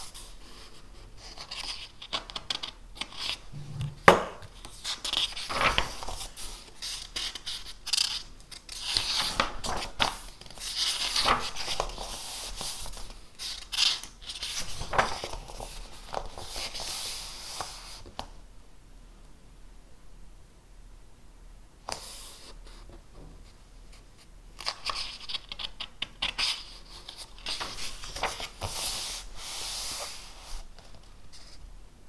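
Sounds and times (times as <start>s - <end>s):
paper scraping and rustling: 13.8s - 17.3s.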